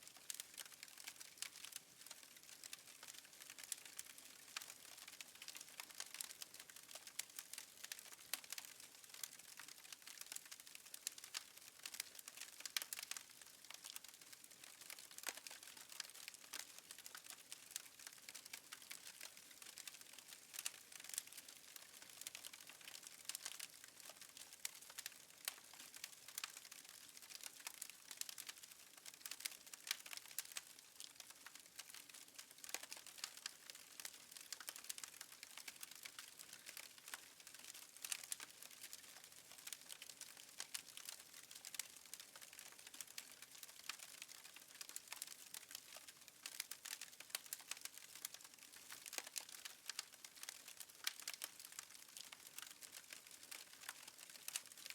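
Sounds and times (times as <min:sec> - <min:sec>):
wood fire crackling: 0:00.1 - 0:54.9.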